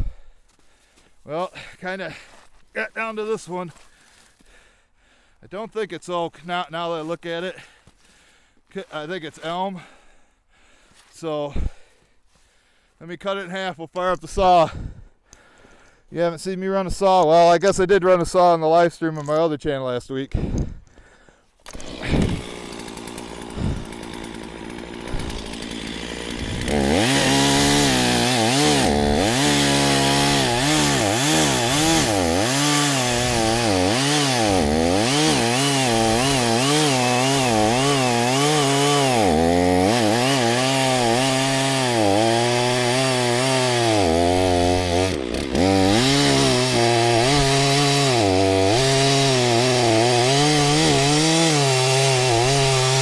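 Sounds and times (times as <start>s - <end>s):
chainsaw cutting wood: 21.6s - 53.0s.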